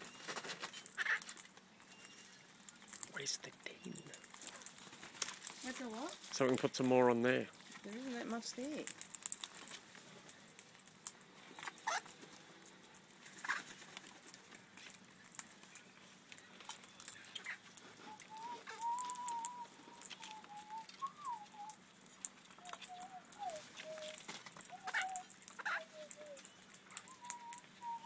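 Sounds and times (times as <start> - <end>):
thin wavering bird whistle: 18.0 - 21.8, 22.6 - 28.0
bird calls sliding downward: 18.1 - 21.8, 22.6 - 26.4, 27.0 - 28.0.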